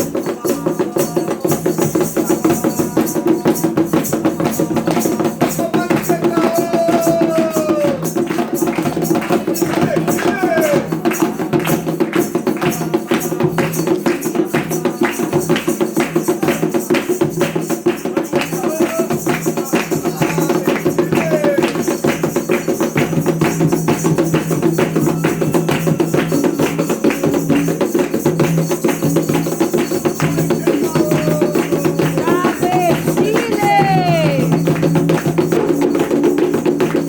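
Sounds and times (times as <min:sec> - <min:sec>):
fast hand percussion beat: 0:00.0 - 0:37.0
voices chanting: 0:05.2 - 0:08.7, 0:18.2 - 0:21.8, 0:29.7 - 0:34.8.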